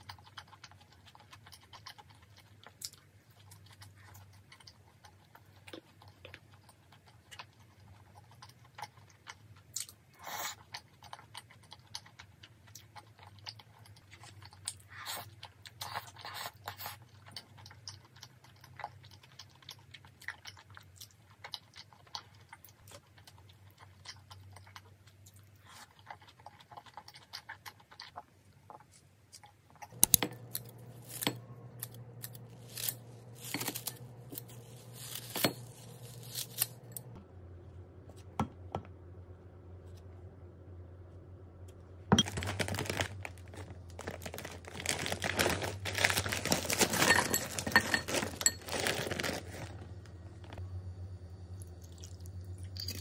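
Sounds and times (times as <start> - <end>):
chewing: 0.0 - 37.2
steady low hum: 29.8 - 53.0
utensils and bowls clicking: 45.3 - 49.4.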